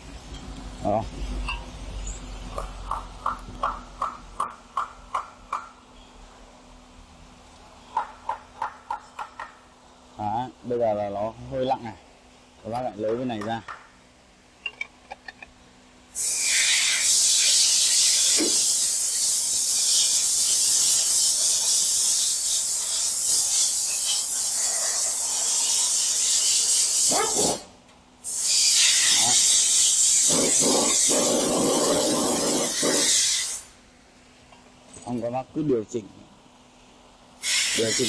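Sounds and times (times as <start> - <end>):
air spraying hiss: 16.2 - 33.7, 37.4 - 38.0.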